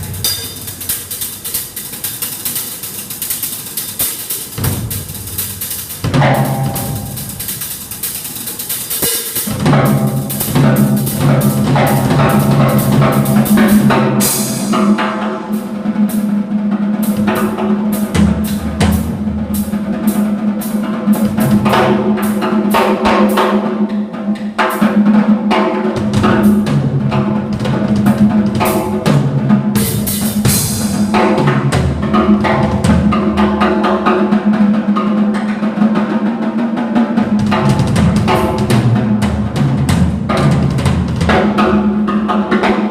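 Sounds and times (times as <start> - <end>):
drum kit playing busy beat: 0.0 - 42.9.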